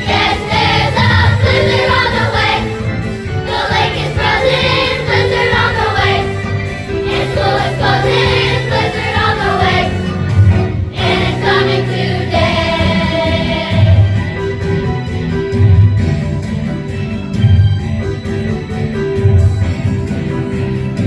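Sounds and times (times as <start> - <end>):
children's choir singing: 0.0 - 14.8
piano accompaniment: 0.0 - 21.0.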